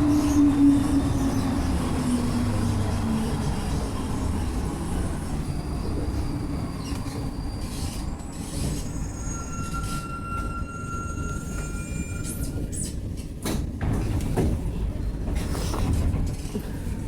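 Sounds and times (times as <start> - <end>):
metro train rumble: 0.0 - 17.0
high-pitched brake whines: 5.3 - 12.8.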